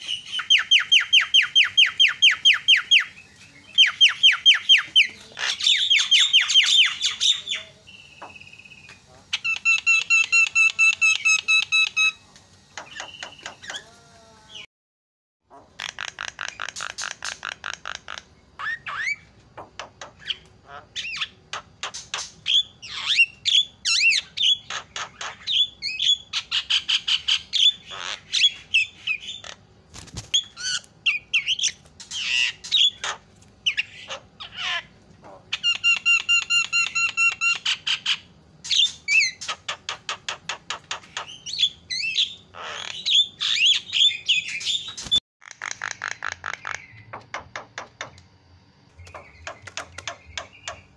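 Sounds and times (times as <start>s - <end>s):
myna bird calling: 0.0s - 14.7s, 15.5s - 48.3s, 48.9s - 50.9s
bird chattering clicks: 12.7s - 13.9s, 15.5s - 18.3s, 45.0s - 48.3s, 49.0s - 50.9s
bird harsh squawks: 40.8s - 46.9s.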